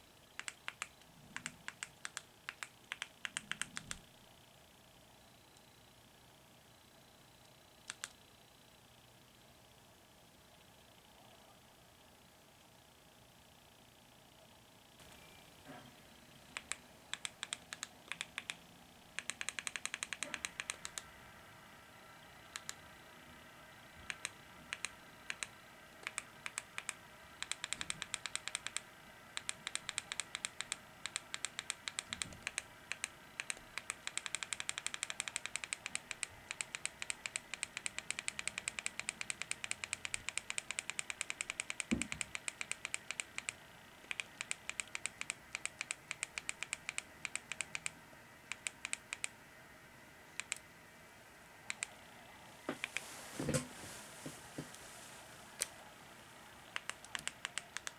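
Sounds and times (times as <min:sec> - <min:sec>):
rapid sharp clicks: 0:00.4 - 0:04.1, 0:07.8 - 0:08.2, 0:16.4 - 0:21.1, 0:22.5 - 0:22.9, 0:24.0 - 0:49.4, 0:50.3 - 0:50.7, 0:51.6 - 0:53.0, 0:56.5 - 0:57.9.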